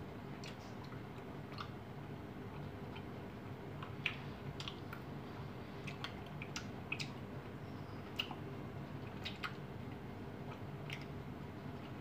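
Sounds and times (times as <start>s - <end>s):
faint low hum: 0.0s - 12.0s
wet mouth clicks and smacks: 3.8s - 5.0s, 5.8s - 7.2s, 8.1s - 8.4s, 9.1s - 9.6s.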